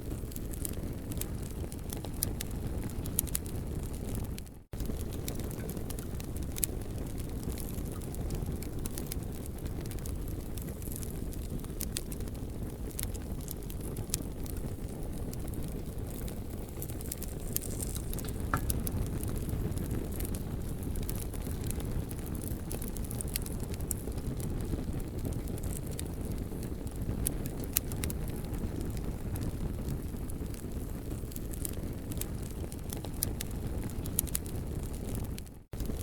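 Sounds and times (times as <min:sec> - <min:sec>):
campfire crackling and popping: 0:00.0 - 0:36.0
low fire rumble: 0:00.0 - 0:36.0.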